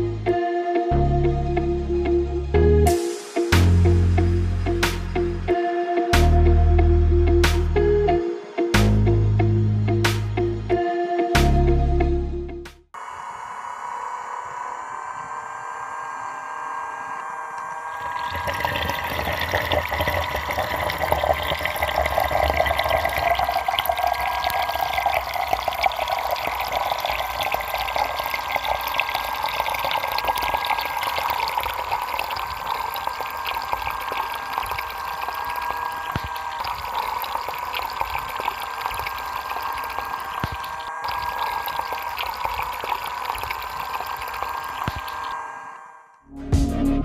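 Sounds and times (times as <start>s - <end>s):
small motor whine: 13.0s - 18.2s.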